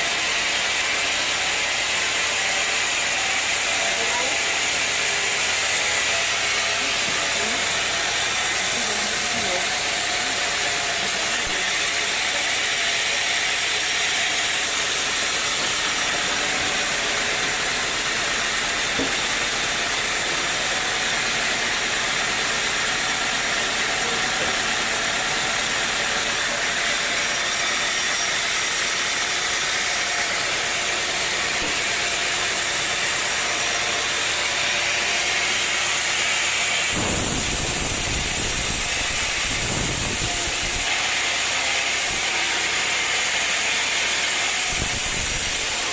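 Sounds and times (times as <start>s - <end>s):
sawmill machinery hissing: 0.0s - 45.9s.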